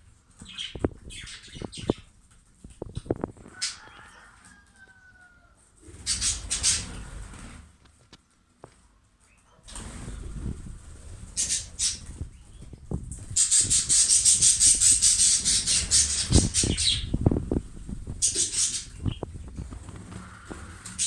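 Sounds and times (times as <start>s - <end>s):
budgerigars chattering: 11.4s - 12.2s, 13.3s - 17.2s, 18.2s - 19.3s.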